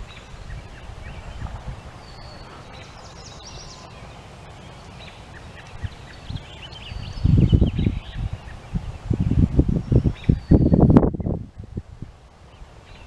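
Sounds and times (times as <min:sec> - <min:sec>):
low uneven rumble: 0:00.0 - 0:12.9
songbirds chirping: 0:00.0 - 0:13.0.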